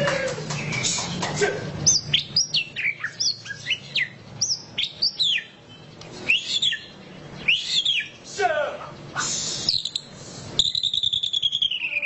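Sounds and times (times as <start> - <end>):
bird singing whistled notes: 1.8 - 8.2, 9.1 - 12.0.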